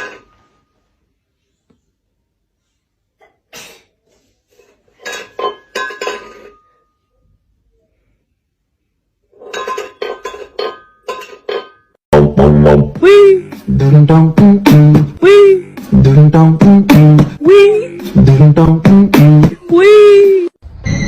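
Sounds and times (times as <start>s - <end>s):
glass or dishes clinking: 5.0s - 7.0s, 9.4s - 12.0s.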